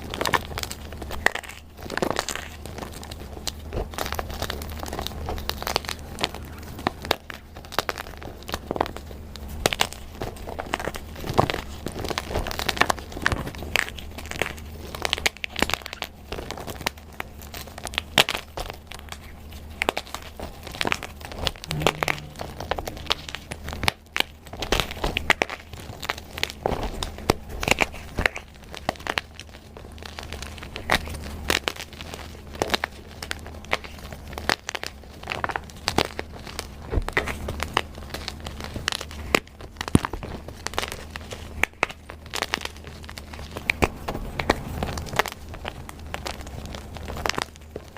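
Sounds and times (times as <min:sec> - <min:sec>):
faint low hum: 0:00.0 - 0:47.9.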